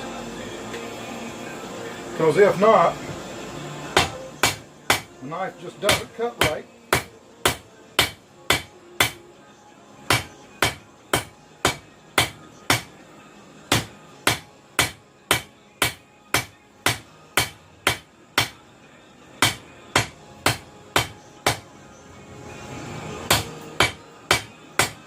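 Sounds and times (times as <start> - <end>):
hammer striking metal on anvil: 4.0 - 5.2, 5.9 - 9.2, 10.1 - 12.9, 13.7 - 18.6, 19.4 - 21.6, 23.3 - 25.0.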